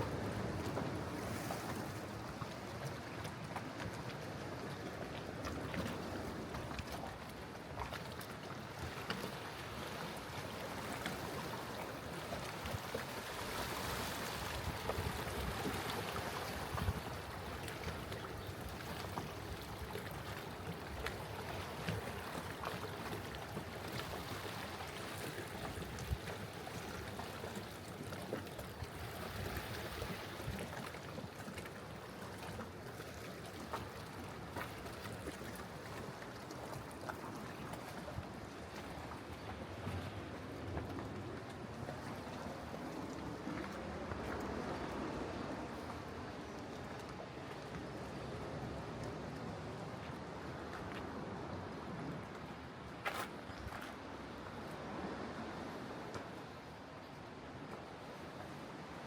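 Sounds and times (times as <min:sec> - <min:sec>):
sea water washing over rocks: 0:00.0 - 0:52.9
sea water washing against rocks: 0:09.2 - 0:31.3.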